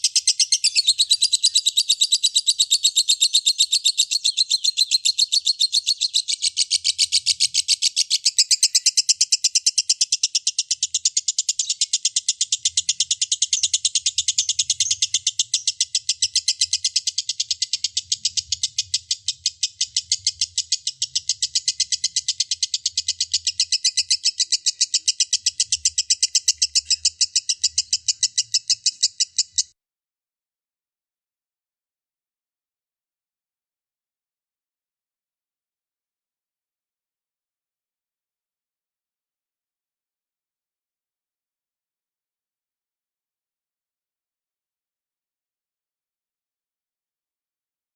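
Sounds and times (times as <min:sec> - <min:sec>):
lovebird rapid high chirps: 0:00.0 - 0:29.8.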